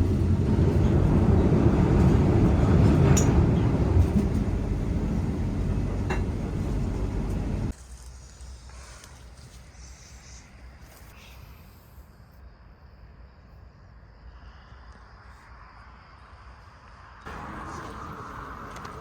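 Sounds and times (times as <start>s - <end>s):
train rumbling: 0.0s - 7.8s, 17.3s - 19.0s.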